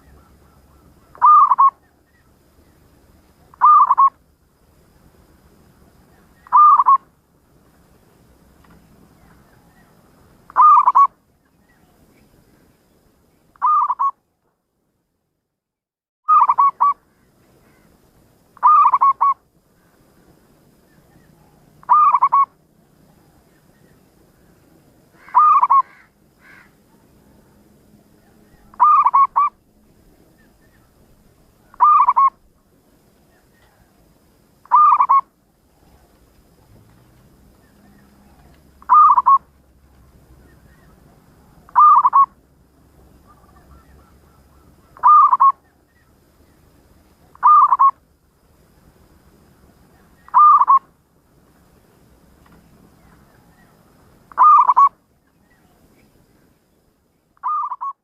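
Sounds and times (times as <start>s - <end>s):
dove cooing: 0.0s - 1.8s, 3.5s - 4.1s, 6.5s - 7.0s, 10.5s - 11.1s, 16.3s - 17.0s, 18.6s - 19.4s, 21.4s - 22.5s, 25.2s - 26.7s, 28.2s - 29.6s, 31.6s - 32.4s, 34.6s - 36.1s, 37.8s - 39.5s, 40.8s - 42.4s, 43.2s - 45.8s, 47.3s - 48.0s, 50.2s - 50.8s, 54.3s - 54.9s, 57.4s - 58.0s.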